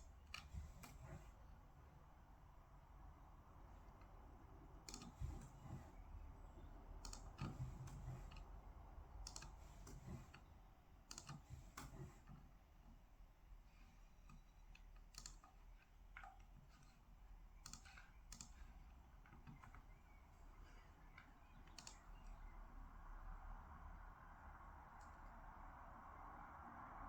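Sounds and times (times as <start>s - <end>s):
faint sparse clicks: 14.2s - 17.0s, 17.6s - 22.6s, 24.9s - 25.4s.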